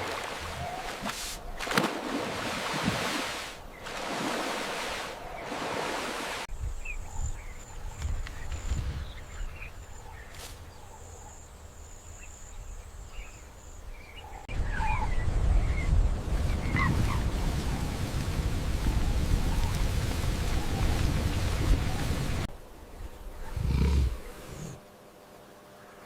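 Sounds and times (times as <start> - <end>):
low wind rumble: 6.5 - 24.8.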